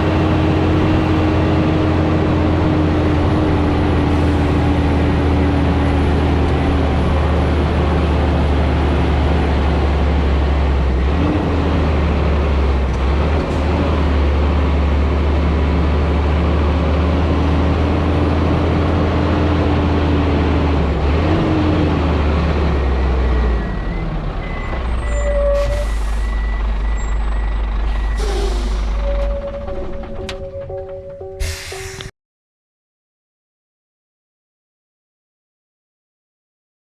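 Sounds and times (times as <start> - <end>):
truck engine drone: 0.0 - 32.1
short beeps: 29.0 - 32.1
air release hisses: 31.4 - 32.1.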